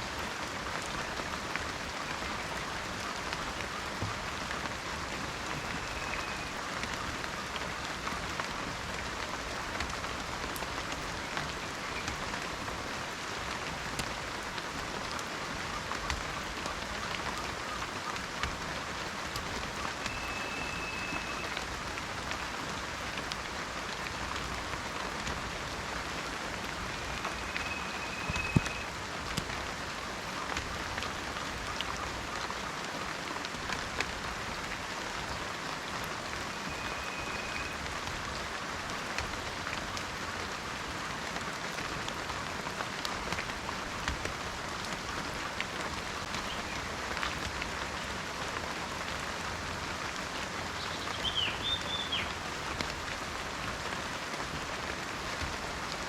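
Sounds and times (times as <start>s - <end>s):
steady rain: 0.0s - 56.0s
raindrops ticking: 0.1s - 56.0s
bird chirp: 50.8s - 52.3s.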